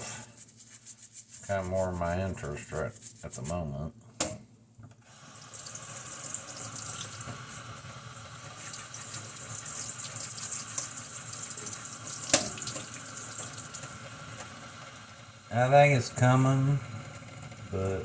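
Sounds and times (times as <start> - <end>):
faucet water running into sink: 5.1 - 18.0.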